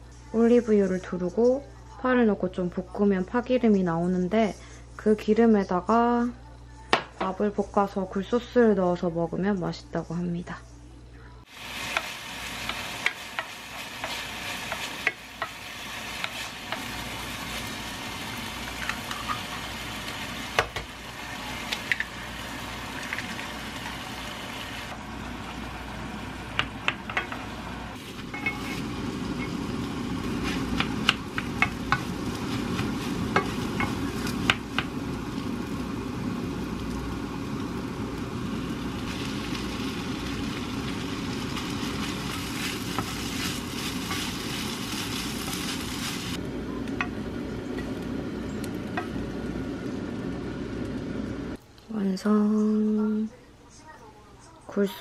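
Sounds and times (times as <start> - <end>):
food sizzling in a frying pan: 11.4 - 51.6
spatula tapping and scraping pan: 33.3 - 34.9.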